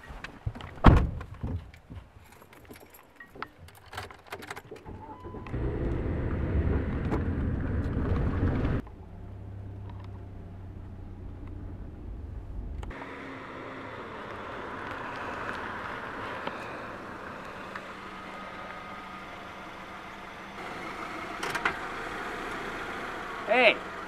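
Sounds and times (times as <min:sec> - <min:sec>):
car engine inside cabin: 0:05.0 - 0:24.0
car passing on road: 0:05.4 - 0:24.0.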